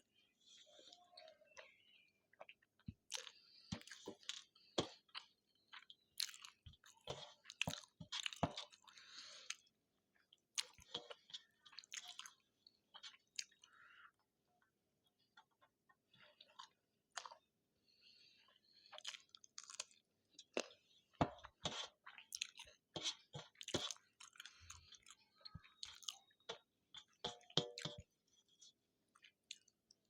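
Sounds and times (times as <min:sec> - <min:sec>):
close chewing mouth clicks: 0:13.0 - 0:13.7, 0:18.9 - 0:20.8, 0:21.9 - 0:26.3.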